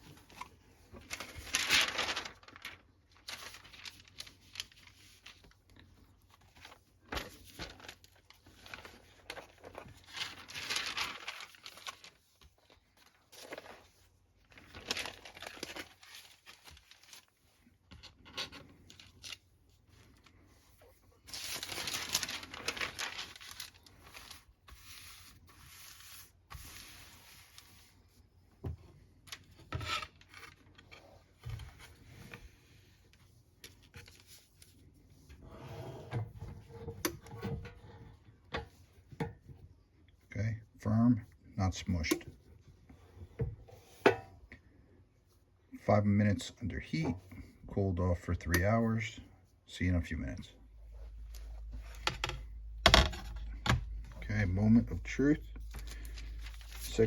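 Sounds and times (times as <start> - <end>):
paper rustling and crinkling: 0.0 - 35.5, 50.2 - 57.0.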